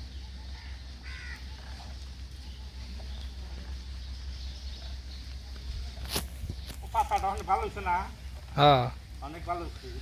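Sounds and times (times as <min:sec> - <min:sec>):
crow cawing: 0:00.5 - 0:01.7.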